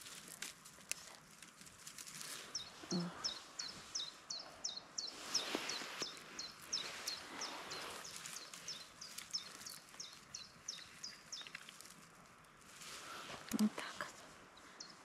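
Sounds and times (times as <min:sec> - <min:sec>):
soft snaps and rustles: 0:00.0 - 0:02.6, 0:08.1 - 0:13.8
songbird calling: 0:02.3 - 0:11.6.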